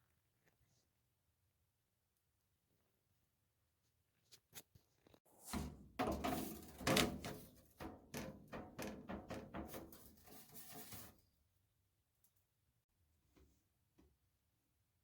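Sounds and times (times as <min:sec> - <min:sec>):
metal ducting knocks and rattles: 0:05.5 - 0:11.1.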